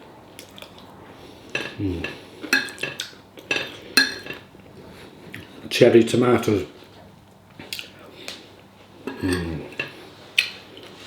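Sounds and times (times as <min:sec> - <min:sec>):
cutlery clinking on a plate: 0:01.5 - 0:04.5.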